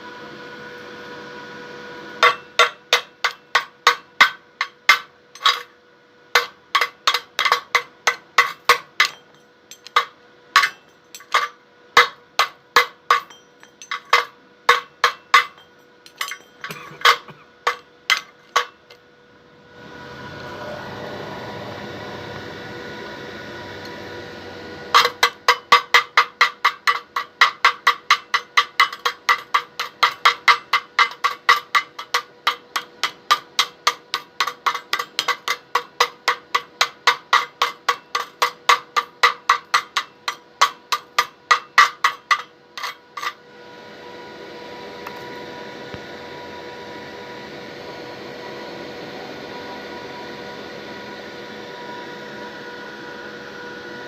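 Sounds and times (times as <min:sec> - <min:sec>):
steady hum: 0:00.0 - 0:54.0
hammer striking metal: 0:02.2 - 0:19.0, 0:24.9 - 0:43.4.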